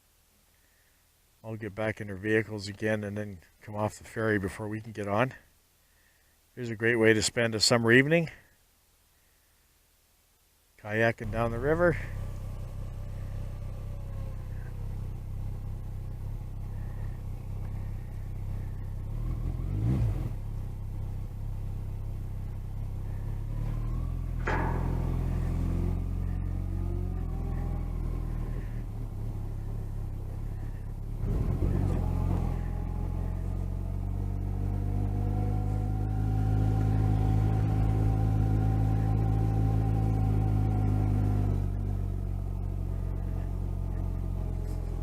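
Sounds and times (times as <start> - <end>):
engine idling: 11.2 - 45.0
vehicles driving past revving: 11.2 - 45.0.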